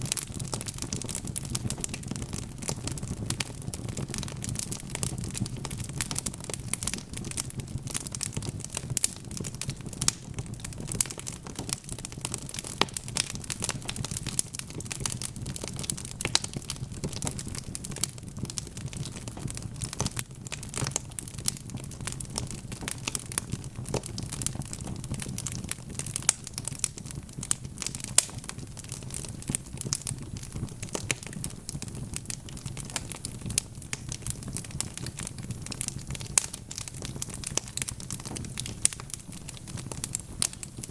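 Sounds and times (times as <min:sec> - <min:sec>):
logs crackling and popping: 0:00.0 - 0:40.9
low rumble of flames: 0:00.0 - 0:40.9.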